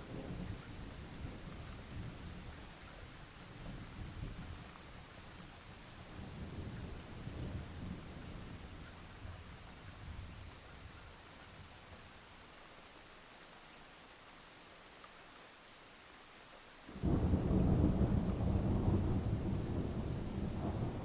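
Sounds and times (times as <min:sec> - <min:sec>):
steady rain hissing: 0:00.0 - 0:21.0
thunder rumble: 0:16.9 - 0:21.0.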